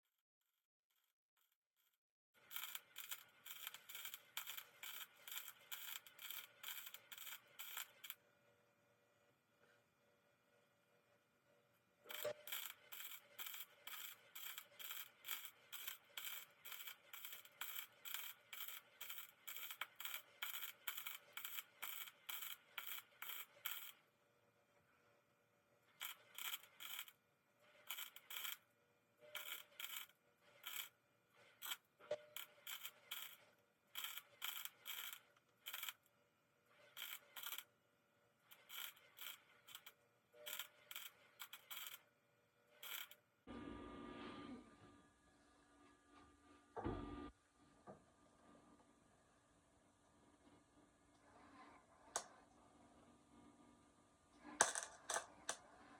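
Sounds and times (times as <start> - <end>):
hand tool rasping on metal: 12.1 - 23.9.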